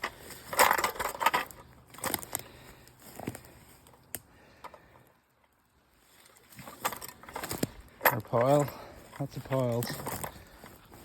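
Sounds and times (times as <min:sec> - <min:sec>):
footsteps crunching on trail: 0:00.0 - 0:00.6, 0:01.5 - 0:04.6, 0:08.6 - 0:11.0.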